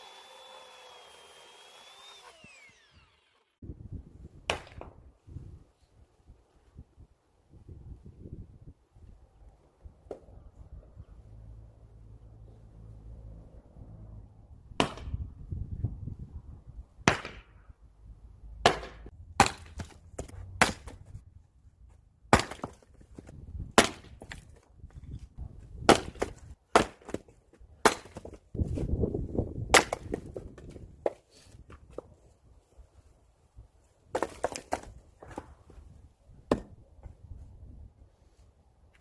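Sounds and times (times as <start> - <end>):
firewood being chopped: 14.8 - 15.2, 18.6 - 21.1, 22.3 - 24.6, 25.8 - 28.4, 29.7 - 32.1, 34.1 - 35.6, 36.5 - 36.8.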